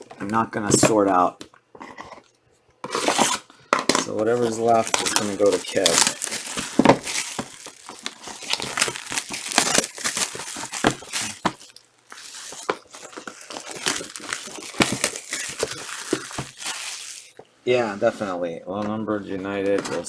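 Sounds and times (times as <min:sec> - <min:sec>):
foil wrappers crinkling and tearing: 0:03.0 - 0:17.4.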